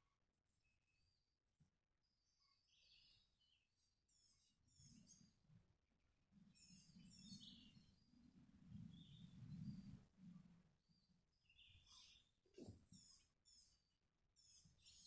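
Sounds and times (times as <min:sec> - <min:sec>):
faint birdsong chirps: 0:00.0 - 0:15.0.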